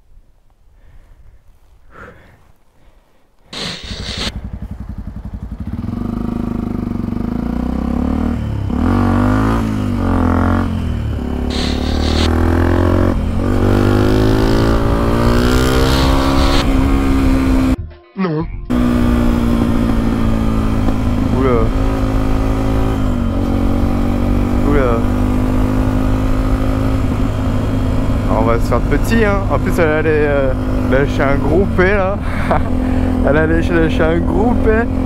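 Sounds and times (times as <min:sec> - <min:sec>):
motorcycle engine starting and revving: 0:03.5 - 0:17.8, 0:18.7 - 0:35.0.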